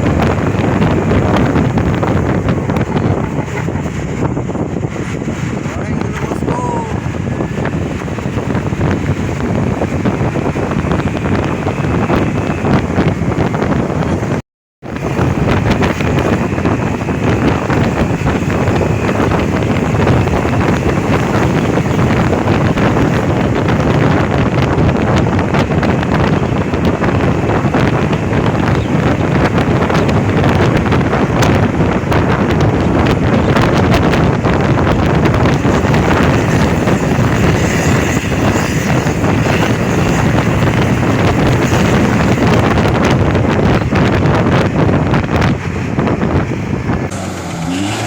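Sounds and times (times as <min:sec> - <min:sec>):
vehicle and road rumble: 0:00.0 - 0:48.0
wind buffeting microphone: 0:00.0 - 0:48.0.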